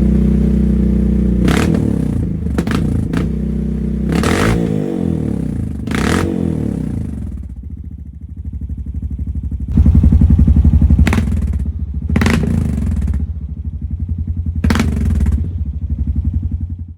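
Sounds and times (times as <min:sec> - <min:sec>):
engine revving: 0:00.0 - 0:07.5, 0:09.7 - 0:13.7, 0:14.4 - 0:16.7
engine idling and sputtering: 0:00.0 - 0:16.9
exhaust cracks: 0:09.7 - 0:13.4, 0:14.5 - 0:15.8.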